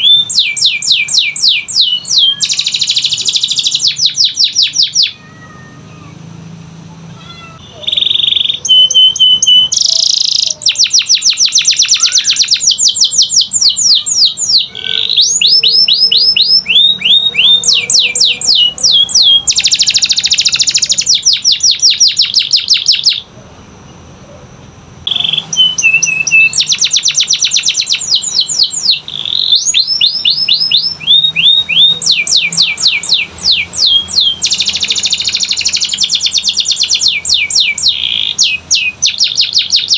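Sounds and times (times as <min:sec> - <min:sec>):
canary singing trills: 0:00.0 - 0:06.4, 0:07.2 - 0:39.9.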